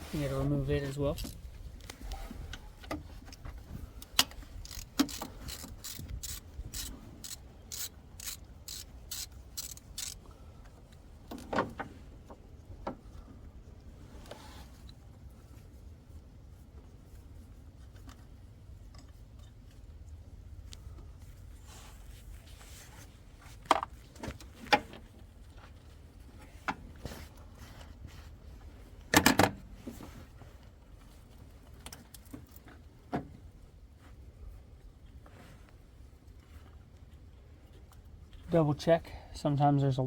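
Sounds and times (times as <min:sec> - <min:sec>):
ratchet wrench clicking: 0:04.1 - 0:10.2.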